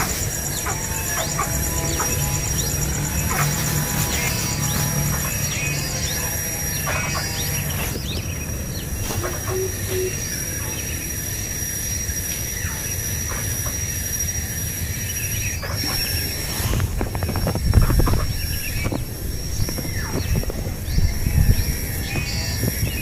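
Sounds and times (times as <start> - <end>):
high thin whine: 0.0 - 11.6
low rumble: 0.0 - 12.6
bird chirps: 0.0 - 23.0.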